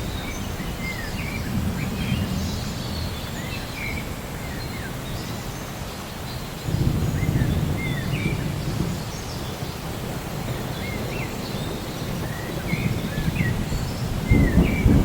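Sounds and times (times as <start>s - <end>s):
distant thunder rumbling: 0.0s - 5.0s, 6.6s - 15.0s
birds chirping and whistling: 6.2s - 9.8s, 10.6s - 15.0s.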